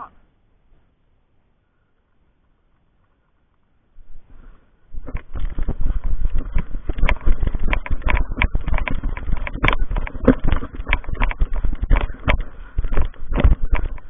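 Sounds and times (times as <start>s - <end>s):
low rumble on microphone: 3.9s - 14.0s
thumps and crunches: 4.9s - 14.0s.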